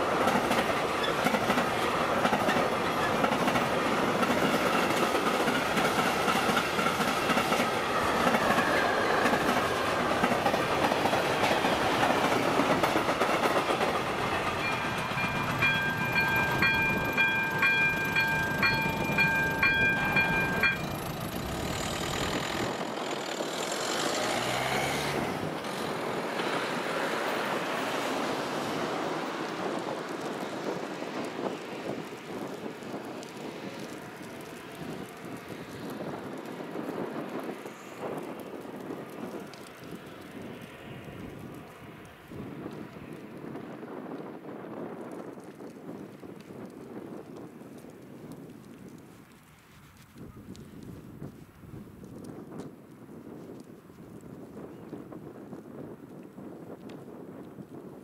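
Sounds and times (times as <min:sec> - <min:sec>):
train wheels clattering over rails: 0:00.0 - 0:32.0
crossing warning bell ringing: 0:14.1 - 0:22.3.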